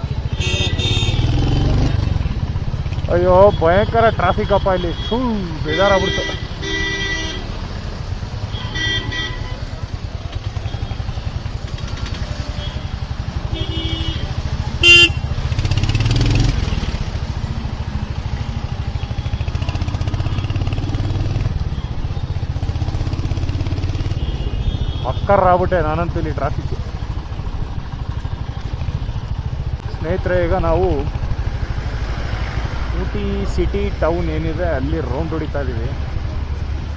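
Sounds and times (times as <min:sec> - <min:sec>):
motorcycle engine running: 0:00.0 - 0:36.9
vehicle horn: 0:00.2 - 0:01.4, 0:04.4 - 0:07.6, 0:08.5 - 0:09.7, 0:12.5 - 0:15.4, 0:24.1 - 0:25.3.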